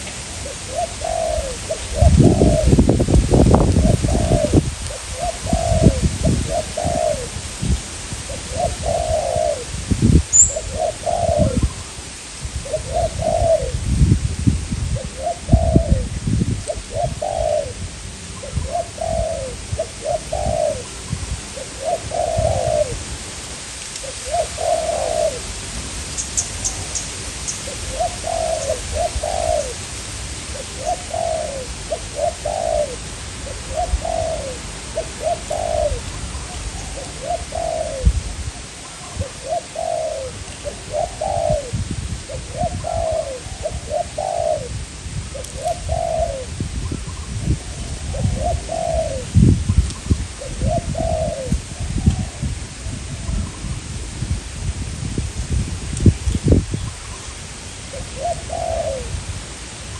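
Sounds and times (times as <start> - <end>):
doves cooing: 0.0 - 7.5, 8.2 - 12.0, 12.6 - 13.9, 14.9 - 17.8, 18.4 - 23.1, 24.0 - 49.4, 50.1 - 53.4, 57.8 - 59.2
wind rumbling on microphone: 0.0 - 59.9
small bird chirping: 10.3 - 11.9, 26.1 - 28.8.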